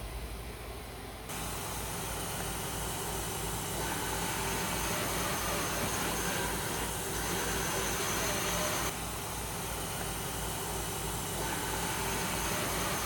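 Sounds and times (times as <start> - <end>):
machining center hissing: 1.3 - 8.9.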